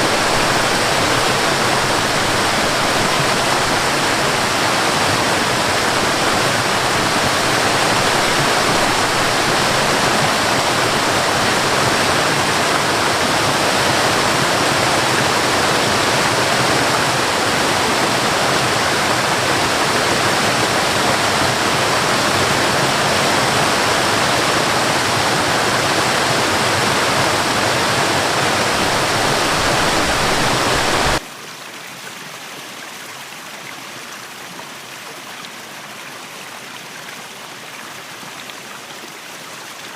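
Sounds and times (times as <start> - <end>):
waterfall rushing: 0.0 - 31.2
gentle water flow: 0.0 - 39.9.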